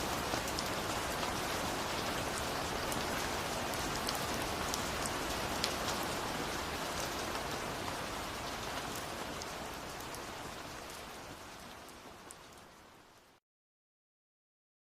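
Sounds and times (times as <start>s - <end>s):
steady rain: 0.0s - 13.4s
raindrops ticking: 3.9s - 11.0s.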